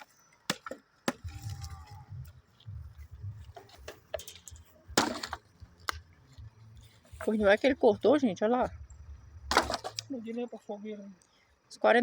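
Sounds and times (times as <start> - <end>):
axe chopping log: 0.0 - 1.7, 4.9 - 6.1, 9.5 - 10.0
low uneven rumble: 1.1 - 11.9.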